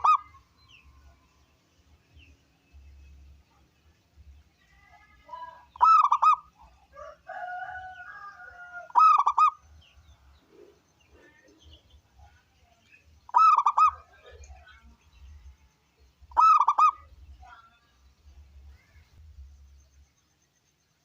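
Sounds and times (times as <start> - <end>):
dove rolling coos: 5.8 - 6.5, 8.9 - 9.6, 13.3 - 14.4.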